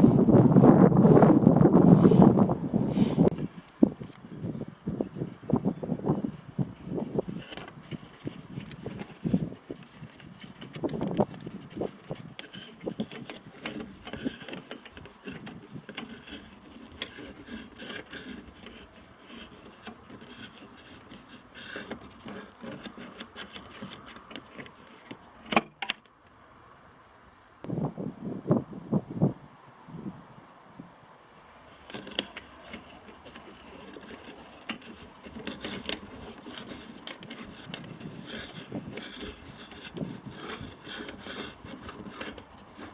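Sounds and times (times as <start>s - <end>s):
metal scraping: 5.8s - 25.3s, 31.6s - 42.9s
hand tools clicking and knocking: 6.6s - 26.1s, 31.7s - 42.9s.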